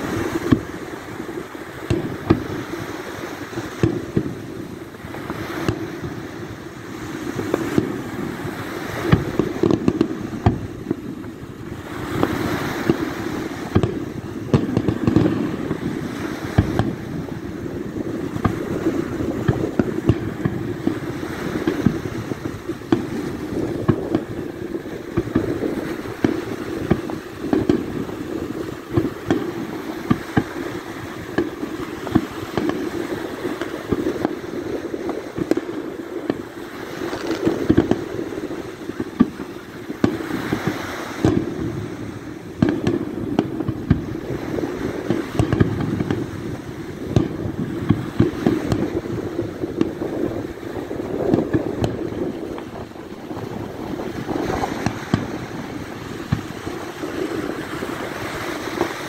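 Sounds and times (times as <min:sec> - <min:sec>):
fireworks shells bursting: 0:17.9 - 0:46.4.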